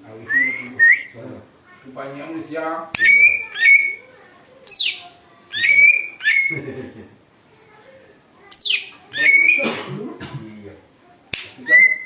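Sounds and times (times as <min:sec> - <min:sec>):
bird giving sharp calls: 0:03.0 - 0:04.1, 0:04.7 - 0:06.6, 0:08.5 - 0:09.7.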